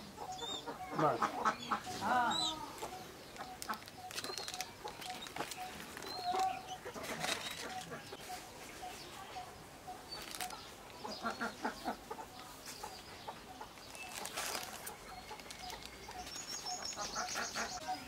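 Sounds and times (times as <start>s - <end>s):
poultry clucking: 0.0s - 18.0s
thin high chirping: 2.1s - 10.6s.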